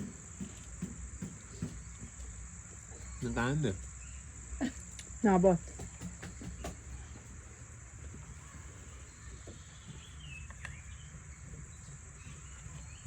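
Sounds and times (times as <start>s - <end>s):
high-pitched insect chorus: 0.0s - 13.0s
bird chirps: 8.4s - 13.0s.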